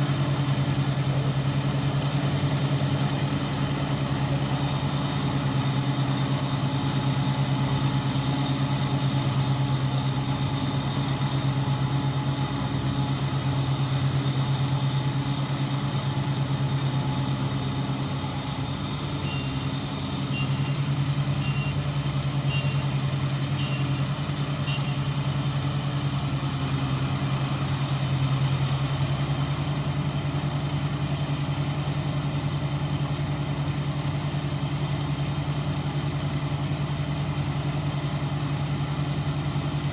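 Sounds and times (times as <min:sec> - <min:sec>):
harvester engine droning: 0:00.0 - 0:39.9
faint high beeps: 0:19.2 - 0:19.7, 0:21.4 - 0:21.8.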